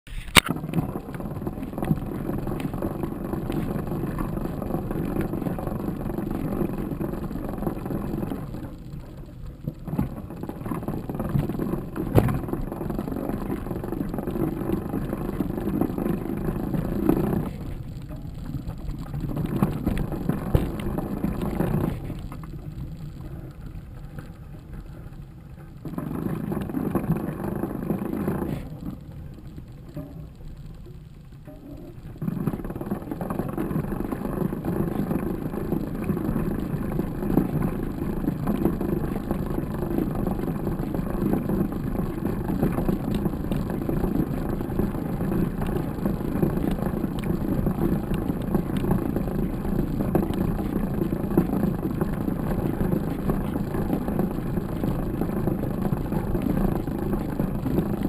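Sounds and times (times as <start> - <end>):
wind rumbling: 0.5 - 58.0
bike knocking over rough ground: 12.1 - 12.5.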